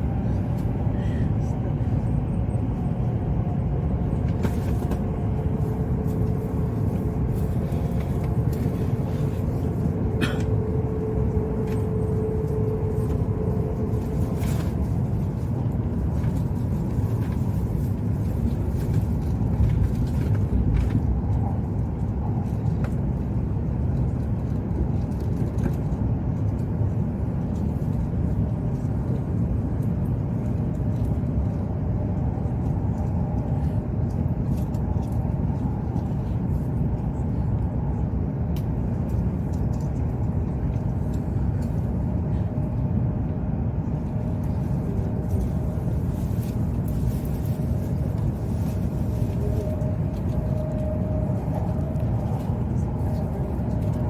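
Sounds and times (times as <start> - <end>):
train cabin rumble: 0.0 - 54.0
faint steady whine: 3.3 - 21.0, 38.6 - 54.0.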